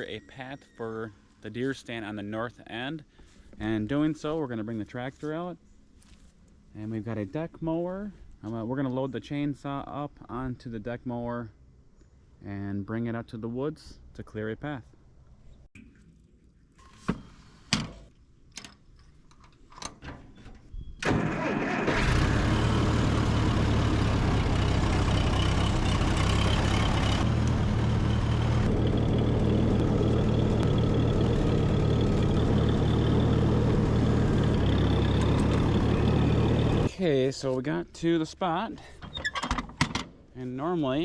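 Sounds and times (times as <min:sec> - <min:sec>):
tractor engine running: 0:21.0 - 0:36.9.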